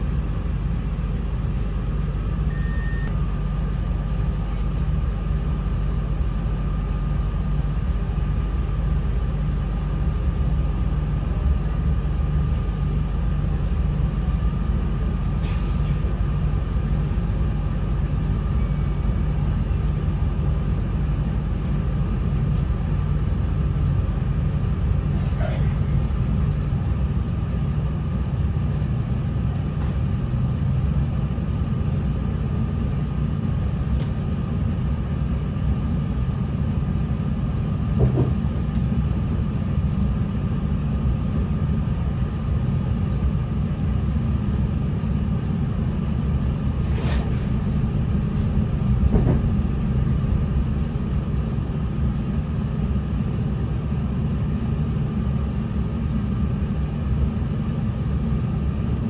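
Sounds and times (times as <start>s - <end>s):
train engine and wheels rumbling: 0.0s - 59.0s
faint steady whine: 38.6s - 59.0s.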